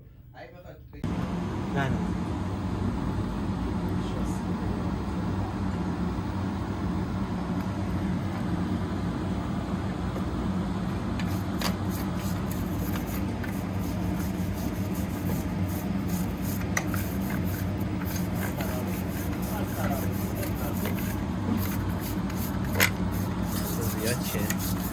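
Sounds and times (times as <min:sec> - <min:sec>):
low mechanical hum: 0:00.0 - 0:24.9
quick rubbing strokes: 0:11.2 - 0:24.9.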